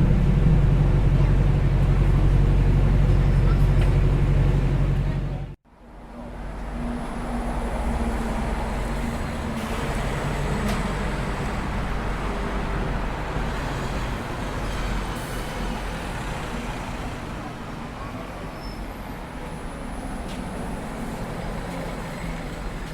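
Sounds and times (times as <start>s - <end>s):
vehicle engines running: 0.0s - 5.6s
road noise: 0.0s - 22.9s.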